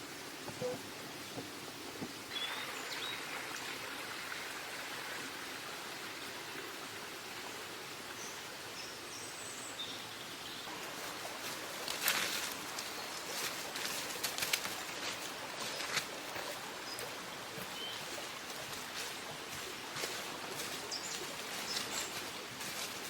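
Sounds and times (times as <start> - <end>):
brief rustle: 11.8 - 12.9.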